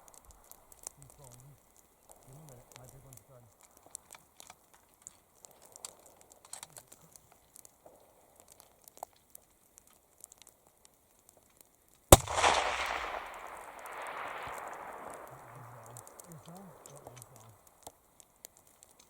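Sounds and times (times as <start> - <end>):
faint small clicks: 0.0 - 19.0
rifle shot with echo: 12.1 - 17.5.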